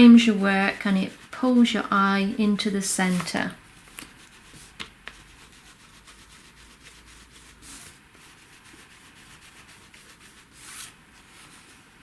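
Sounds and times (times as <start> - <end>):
brushing swishes: 0.0 - 12.0.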